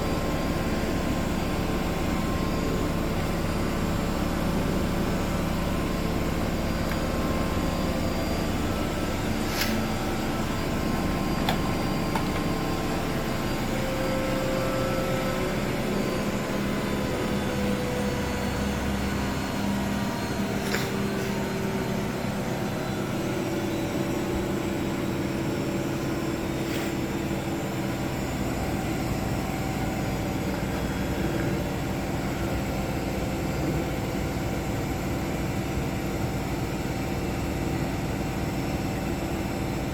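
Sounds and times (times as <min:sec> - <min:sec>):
washing machines spinning: 0:00.0 - 0:39.9.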